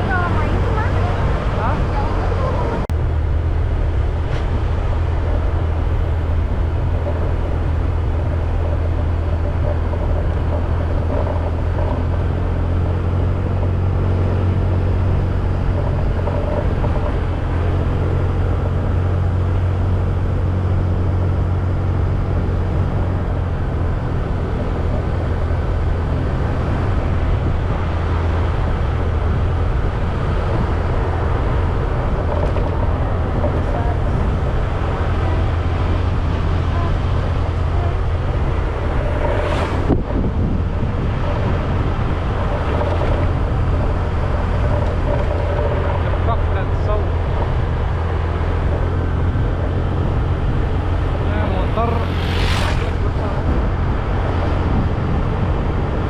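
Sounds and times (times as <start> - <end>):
motorbike engine cruising: 0.0 - 56.0
wind and road noise: 0.0 - 56.0.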